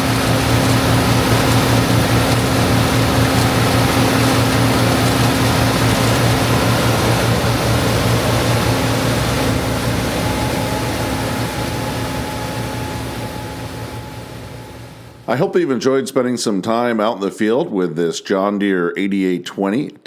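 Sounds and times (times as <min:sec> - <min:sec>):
threshing machinery noise: 0:00.0 - 0:15.1
diesel engine hum: 0:00.0 - 0:15.3.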